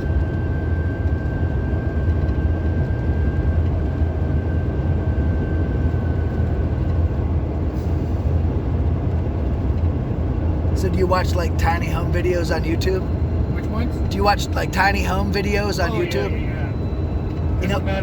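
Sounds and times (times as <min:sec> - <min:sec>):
road and engine rumble in car: 0:00.0 - 0:18.0
faint high whine: 0:10.8 - 0:18.0.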